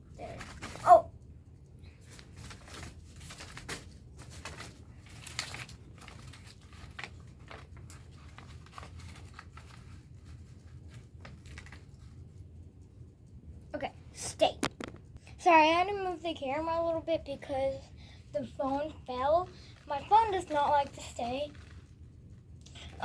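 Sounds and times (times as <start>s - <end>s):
paper crinkling: 0.0s - 1.1s, 1.8s - 12.5s, 18.4s - 23.0s.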